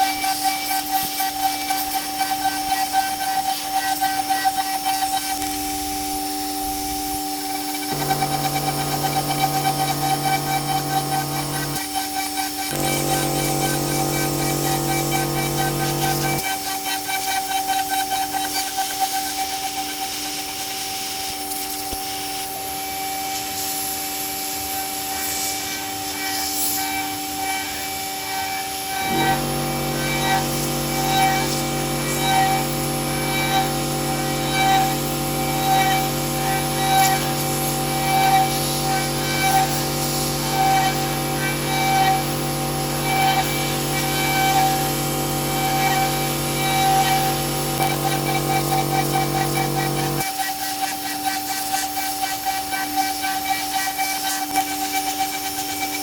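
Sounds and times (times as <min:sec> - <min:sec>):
hiss of bit cutting metal: 0:00.0 - 0:22.6, 0:45.8 - 0:56.0
cnc router spindle whine: 0:00.0 - 0:56.0
low tone: 0:12.7 - 0:16.4.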